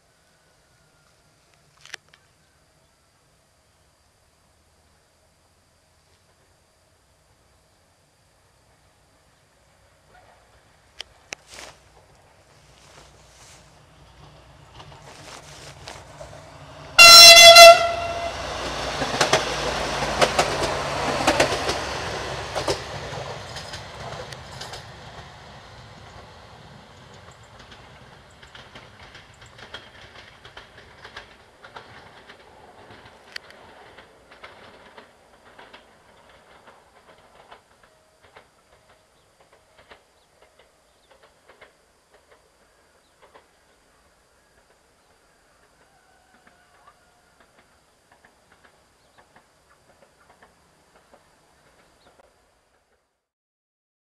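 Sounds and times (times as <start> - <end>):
train wheels clattering: 11.5 - 44.9, 45.6 - 53.2
train horn blast: 16.9 - 18.9.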